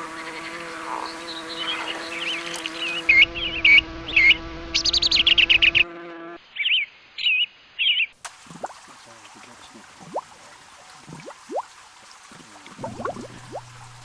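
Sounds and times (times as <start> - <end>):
songbird singing: 0.0 - 5.8, 6.5 - 8.2
steady buzzing hum: 12.8 - 14.0.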